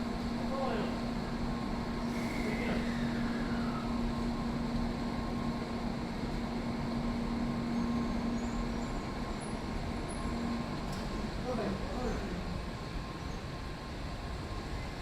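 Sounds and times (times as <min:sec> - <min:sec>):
train humming: 0:00.0 - 0:15.0.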